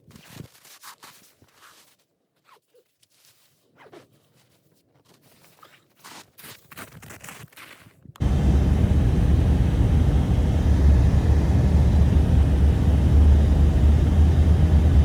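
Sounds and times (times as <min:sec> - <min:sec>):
strong blizzard wind: 0:08.2 - 0:15.0.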